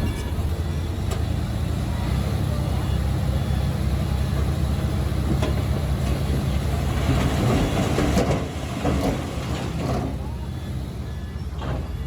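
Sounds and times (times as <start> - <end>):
metallic clanks: 0.0 - 1.3
diesel engine rumbling: 0.0 - 12.0.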